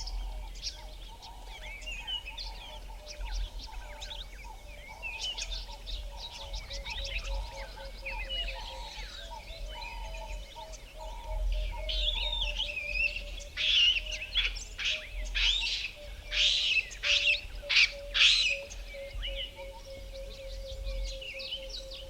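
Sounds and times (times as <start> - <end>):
loud harsh bird calls: 12.0 - 19.6.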